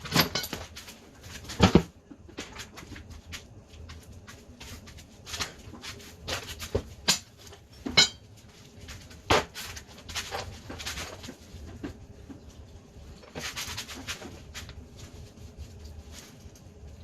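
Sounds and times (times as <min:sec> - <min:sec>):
metallic clinks and knocks of tools: 0:00.0 - 0:01.0.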